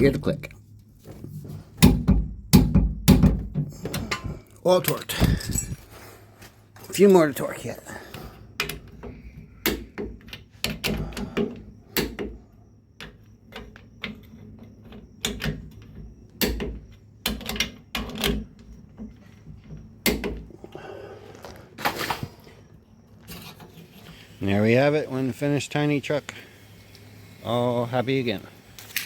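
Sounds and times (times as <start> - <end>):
tool handling knocks: 1.1 - 4.4.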